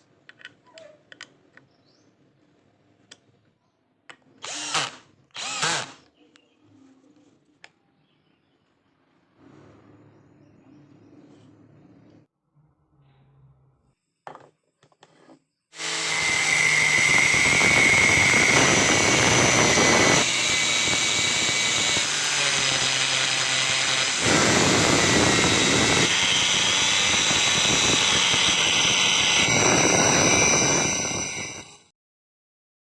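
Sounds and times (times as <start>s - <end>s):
angle grinder whining: 4.4s - 6.0s, 15.8s - 31.9s.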